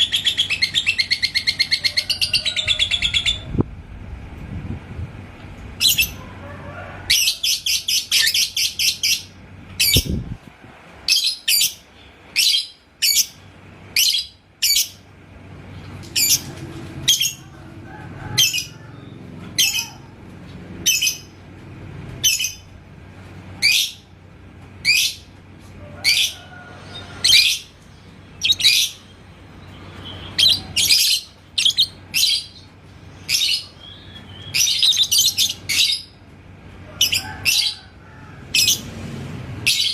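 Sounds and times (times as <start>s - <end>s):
lovebird chirping: 28.4s - 29.2s, 30.0s - 32.7s, 33.3s - 36.1s.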